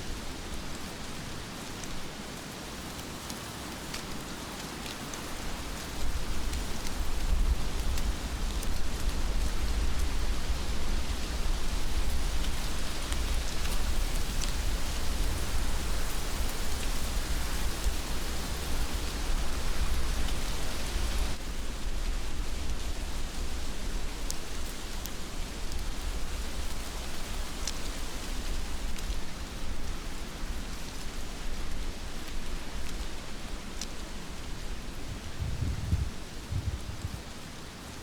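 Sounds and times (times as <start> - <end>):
heavy rain falling: 4.1 - 22.0, 31.4 - 38.0.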